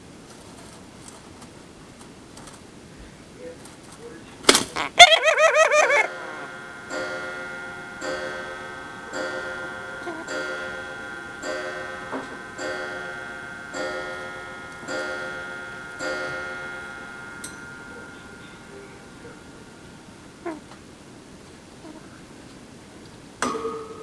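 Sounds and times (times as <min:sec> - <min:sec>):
bell-like chime: 0:06.1 - 0:20.4.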